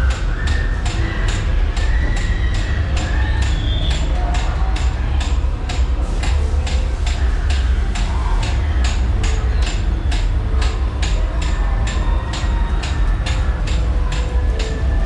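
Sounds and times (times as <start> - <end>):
fast regular clicking: 0.0 - 15.0
ride car rumbling on track: 0.0 - 15.0.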